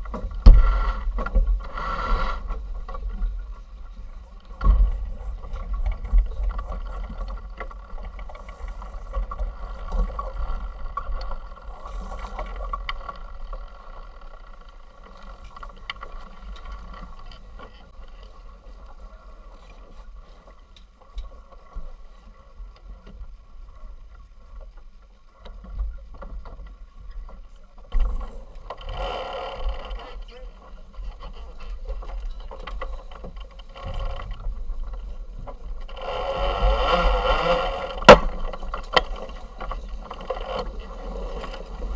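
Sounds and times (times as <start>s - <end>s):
water rushing along hull: 0.0s - 41.9s
wind rumble on microphone: 0.0s - 41.9s.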